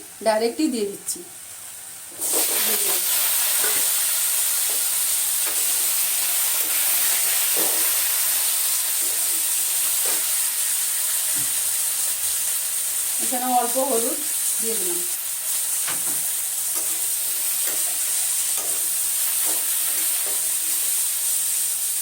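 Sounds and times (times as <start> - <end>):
food frying in hot oil: 0.0 - 22.0
spatula scraping a pan: 2.2 - 10.4, 16.7 - 21.1.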